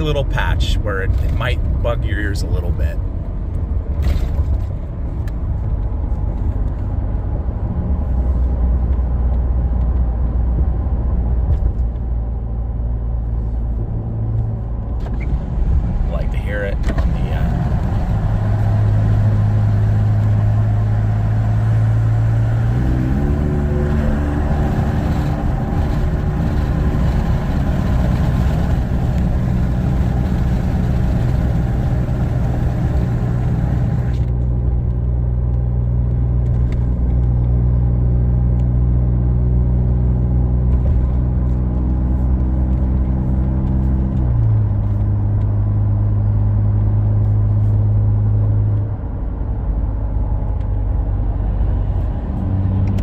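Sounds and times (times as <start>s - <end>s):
truck engine exhaust drone: 12.1s - 53.0s.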